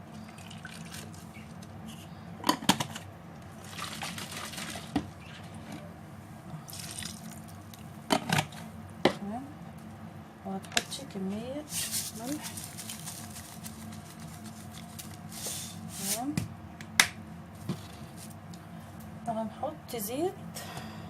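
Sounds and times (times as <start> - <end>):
liquid pouring into a bowl: 6.7 - 7.6.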